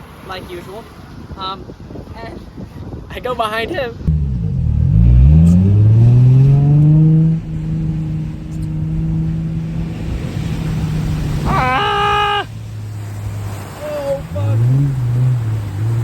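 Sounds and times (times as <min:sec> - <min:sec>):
car engine accelerating: 0:04.1 - 0:16.0.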